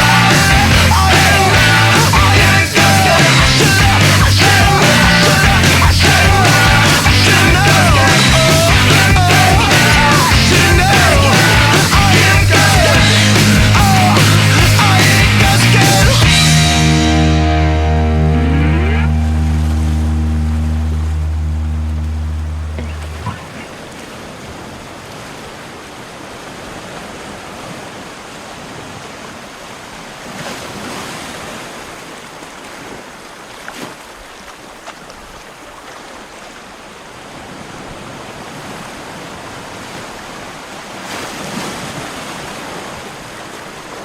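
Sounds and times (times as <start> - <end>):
wave breaking: 0.0 - 33.1
waves washing onto shore: 19.1 - 44.0.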